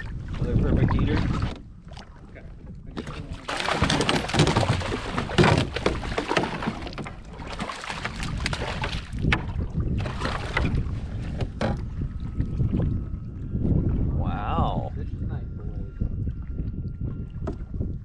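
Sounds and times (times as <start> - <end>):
knocks and clicks in boat: 0.0 - 12.0, 16.6 - 17.8
water splashing beside canoe: 0.0 - 12.9
wind on microphone: 0.0 - 18.0.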